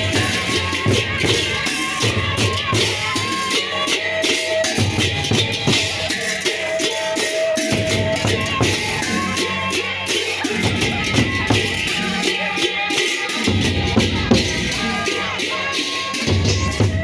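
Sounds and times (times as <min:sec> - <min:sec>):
fast dense cymbal strokes: 0:00.0 - 0:17.0
held melodic tones: 0:00.0 - 0:17.0
deep drum beats: 0:10.6 - 0:12.2, 0:13.5 - 0:15.2.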